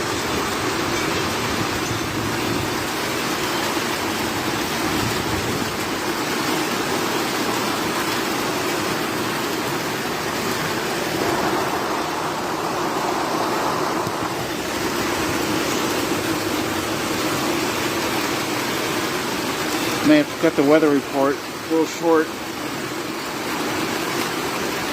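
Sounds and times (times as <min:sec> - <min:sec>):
rain pouring: 0:00.0 - 0:24.9
low hum: 0:10.5 - 0:17.8.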